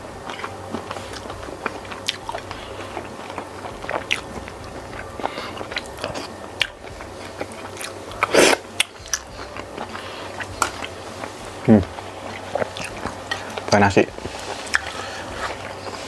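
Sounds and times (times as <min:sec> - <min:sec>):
chewing and biting squid: 0:00.2 - 0:16.0.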